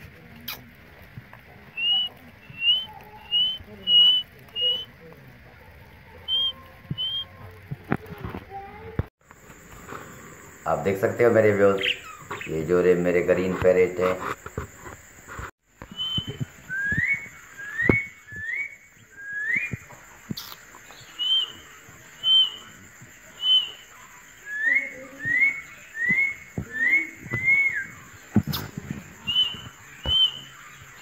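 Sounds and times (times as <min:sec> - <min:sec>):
bird chirping: 0:00.4 - 0:07.7, 0:09.6 - 0:13.7, 0:15.8 - 0:31.0
high bird peeps: 0:01.7 - 0:04.9, 0:06.2 - 0:07.4, 0:15.8 - 0:31.0.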